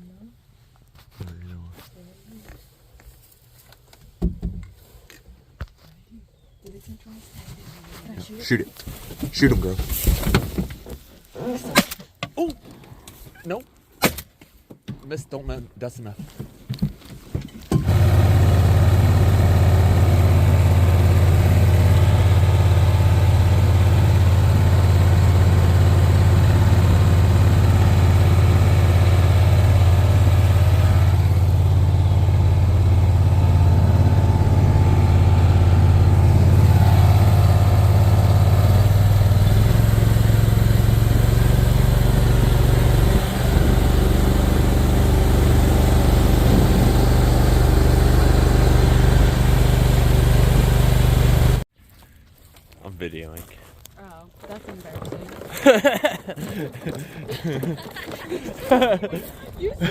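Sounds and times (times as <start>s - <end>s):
engine running steadily: 17.8s - 51.6s.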